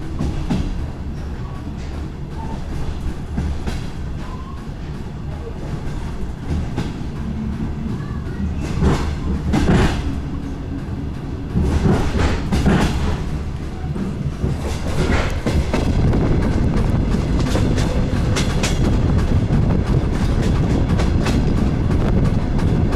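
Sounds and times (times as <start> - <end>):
train rumbling: 0.0 - 22.9
wheels clicking over rail joints: 0.0 - 22.9.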